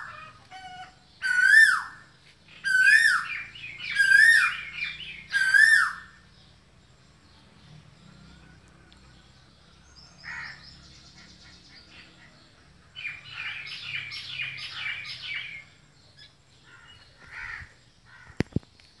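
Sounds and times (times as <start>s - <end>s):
birds calling harshly: 0.0s - 6.7s, 7.3s - 19.0s.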